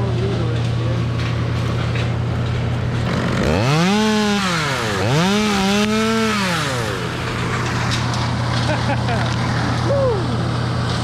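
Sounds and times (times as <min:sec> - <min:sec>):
chainsaw idling and revving: 0:03.0 - 0:09.8.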